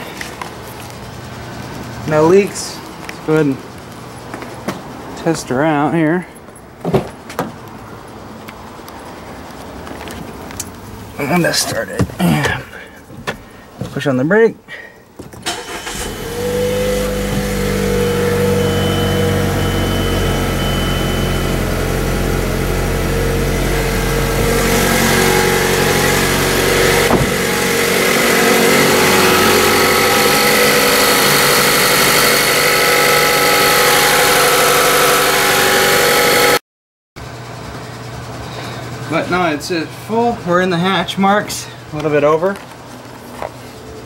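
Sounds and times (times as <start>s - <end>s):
car engine starting and idling: 15.3s - 36.6s.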